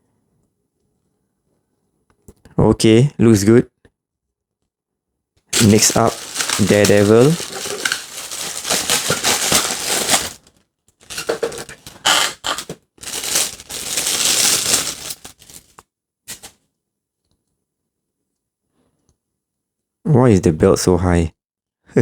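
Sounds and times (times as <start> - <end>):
plastic packaging crinkling: 5.6 - 16.5.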